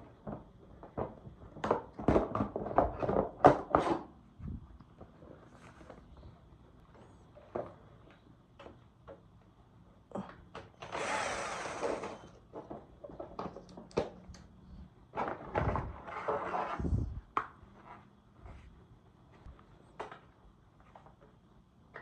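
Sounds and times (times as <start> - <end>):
scraping or rustling: 15.2 - 18.7.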